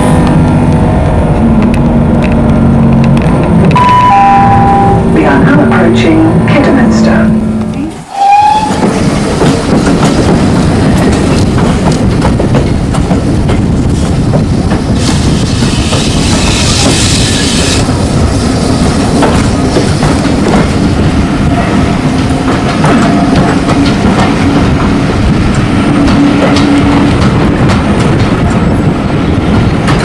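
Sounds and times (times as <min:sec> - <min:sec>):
train rolling on rails: 0:00.0 - 0:30.0
hiss: 0:14.9 - 0:17.9.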